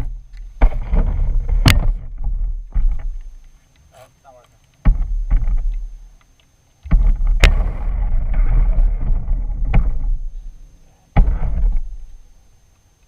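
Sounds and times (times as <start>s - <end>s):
sharp knock: 6.9s - 8.1s.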